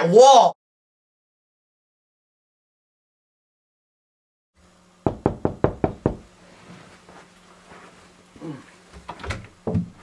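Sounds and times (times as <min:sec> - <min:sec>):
knocking on a door: 0:05.0 - 0:06.3, 0:09.6 - 0:10.0.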